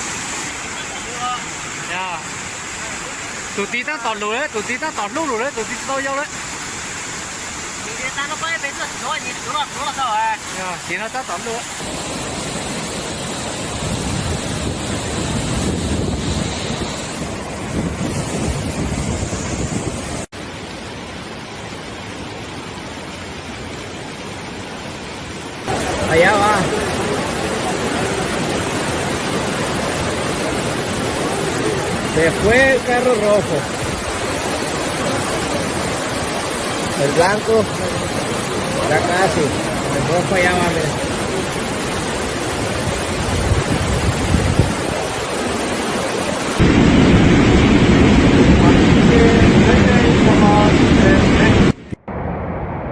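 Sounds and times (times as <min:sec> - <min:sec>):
rushing floodwater: 0:00.0 - 0:52.0
wind buffeting microphone: 0:13.0 - 0:20.3, 0:41.0 - 0:45.6.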